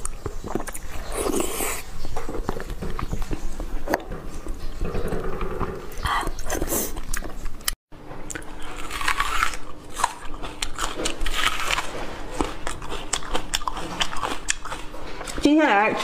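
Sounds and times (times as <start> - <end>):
wet chewing and smacking: 0.0 - 16.0.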